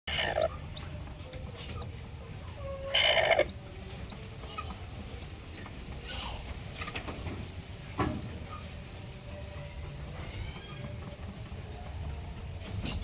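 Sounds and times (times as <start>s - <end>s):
chicken clucking and calling: 0.0s - 6.0s.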